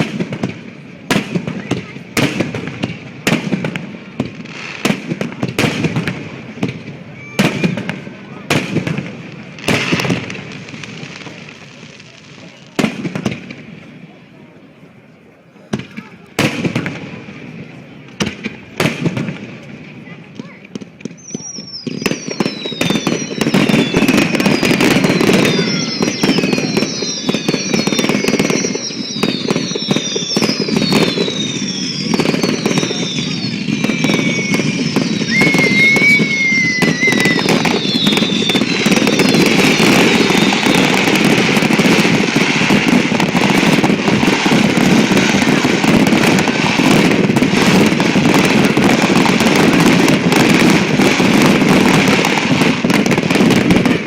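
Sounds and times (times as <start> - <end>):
fireworks whistling: 0.0 - 14.0, 15.7 - 54.0
fireworks bangs and crackling: 0.0 - 54.0.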